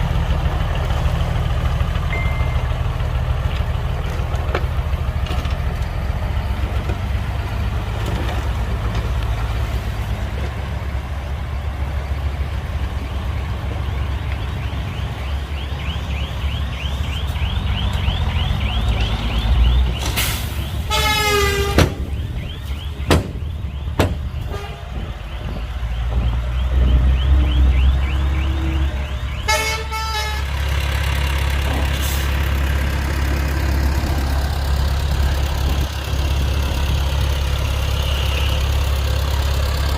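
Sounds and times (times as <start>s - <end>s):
heavy diesel engines running: 0.0s - 39.9s
short horn toot: 20.9s - 22.0s
sharp knocks: 23.0s - 24.4s.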